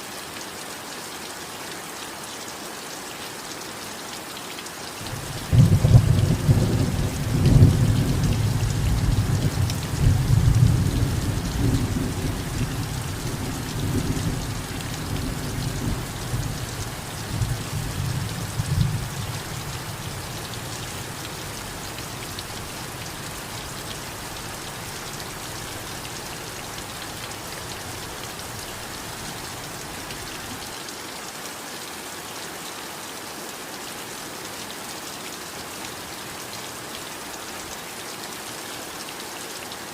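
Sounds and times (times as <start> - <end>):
heavy rain: 0.0 - 39.9
low roll of thunder: 5.1 - 19.7.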